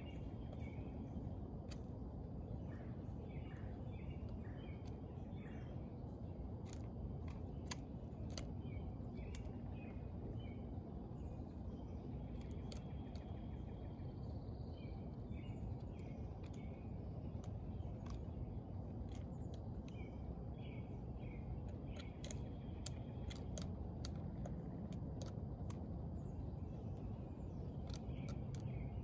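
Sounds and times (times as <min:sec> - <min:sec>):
low outdoor rumble: 0:00.0 - 0:29.0
small birds chirping: 0:00.0 - 0:29.0
sharp clicks: 0:06.6 - 0:09.9, 0:15.7 - 0:20.4, 0:21.6 - 0:26.0, 0:26.9 - 0:29.0.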